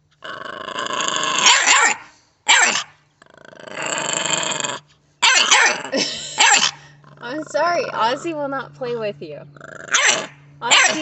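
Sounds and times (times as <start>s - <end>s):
dog play-growling: 0.0s - 1.9s, 2.6s - 8.4s, 9.5s - 11.0s
dog barking: 1.4s - 2.9s, 5.2s - 5.8s, 9.9s - 11.0s.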